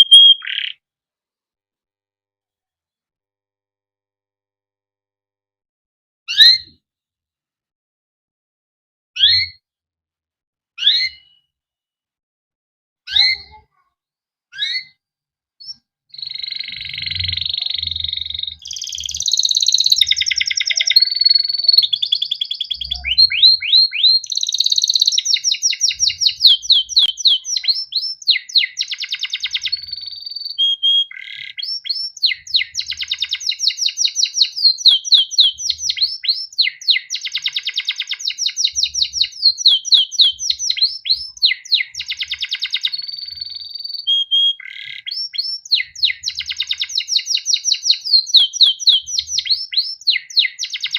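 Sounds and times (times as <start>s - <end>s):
canary chirping and trilling: 0.0s - 0.8s, 6.3s - 6.8s, 9.2s - 9.6s, 10.8s - 11.5s, 13.1s - 13.8s, 14.5s - 15.0s, 15.6s - 50.9s.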